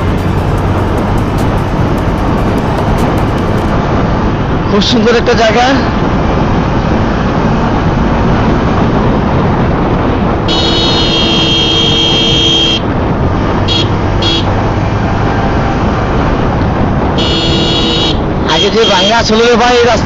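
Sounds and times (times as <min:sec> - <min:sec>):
wind and road noise on motorcycle: 0:00.0 - 0:20.0
vehicle horn: 0:10.5 - 0:12.8, 0:13.7 - 0:14.5, 0:17.2 - 0:19.1.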